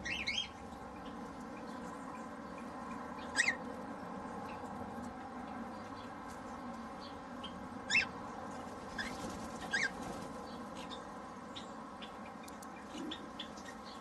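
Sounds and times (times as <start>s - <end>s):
cockatiel calls: 7.9s - 8.1s.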